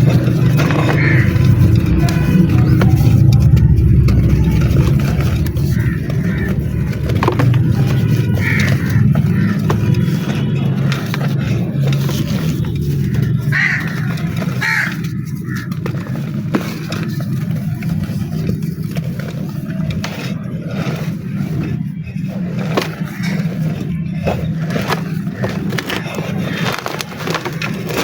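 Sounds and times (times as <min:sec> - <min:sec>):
low hum: 0:00.0 - 0:26.0
dry mud crunching: 0:00.0 - 0:28.0
crow cawing: 0:00.4 - 0:10.7, 0:13.0 - 0:15.8.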